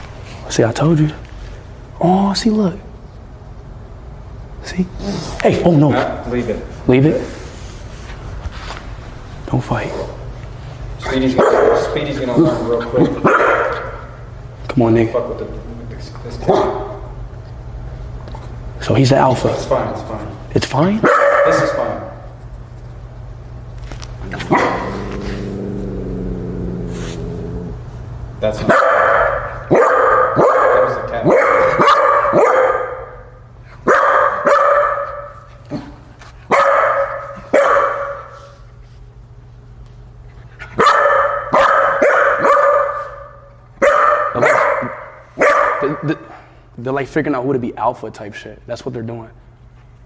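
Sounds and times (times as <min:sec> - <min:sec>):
dog barking: 0:11.3 - 0:12.1, 0:13.2 - 0:14.1, 0:16.4 - 0:17.1, 0:21.0 - 0:22.1, 0:24.4 - 0:25.1, 0:28.6 - 0:35.9, 0:36.5 - 0:38.5, 0:40.8 - 0:46.1
cat growling: 0:24.2 - 0:27.9.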